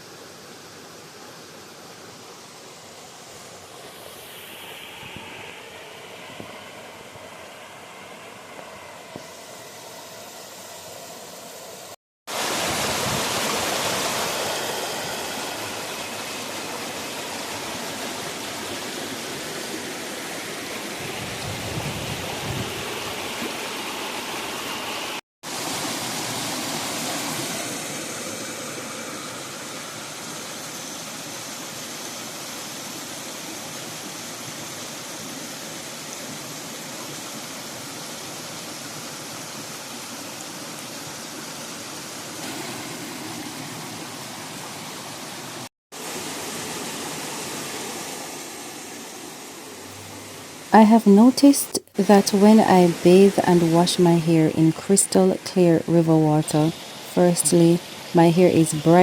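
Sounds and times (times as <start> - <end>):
river water rushing: 12.3 - 21.8.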